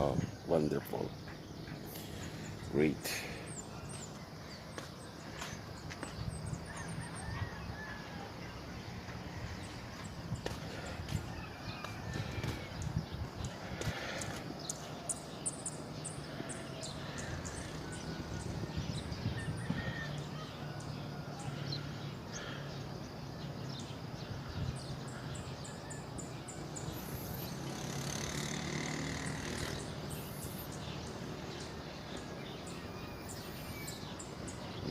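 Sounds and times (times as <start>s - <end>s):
bird chirps and calls: 0.0s - 7.9s, 23.4s - 34.9s.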